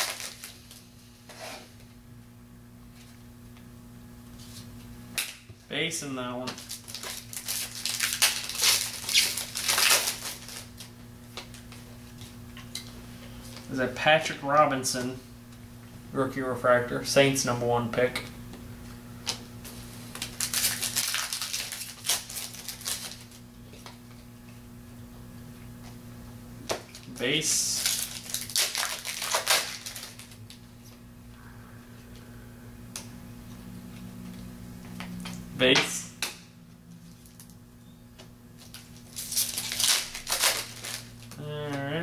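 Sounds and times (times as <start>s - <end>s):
wrapper tearing and crinkling: 0.0s - 0.8s, 6.6s - 10.9s, 20.1s - 23.4s, 26.8s - 30.6s, 38.6s - 41.4s
steady low hum: 0.0s - 42.0s.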